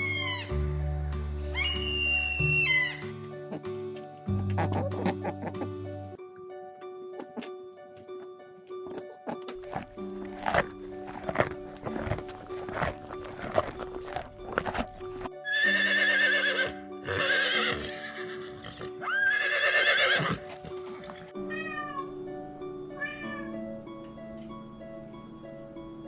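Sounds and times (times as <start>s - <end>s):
cat meowing: 0.0s - 0.5s, 21.4s - 22.2s, 23.0s - 23.6s
background music: 0.0s - 26.0s.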